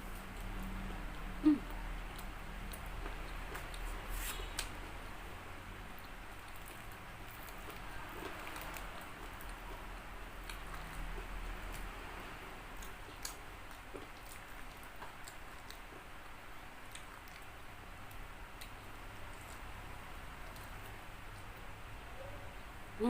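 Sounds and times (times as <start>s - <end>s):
chewing crispy fried chicken: 0.0s - 21.8s.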